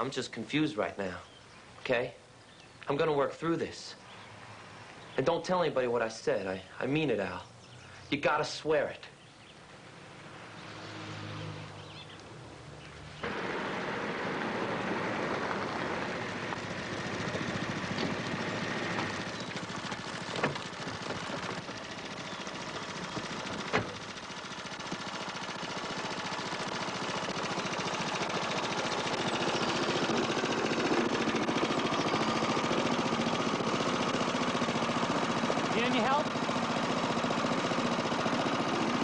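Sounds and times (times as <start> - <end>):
car engine idling: 11.6 - 39.0.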